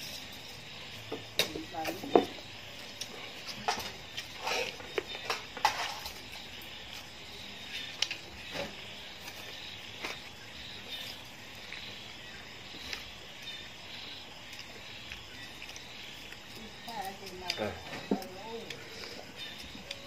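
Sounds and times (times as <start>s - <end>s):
insects chirping: 0.0s - 20.0s
chewing and lip-smacking: 14.4s - 17.6s.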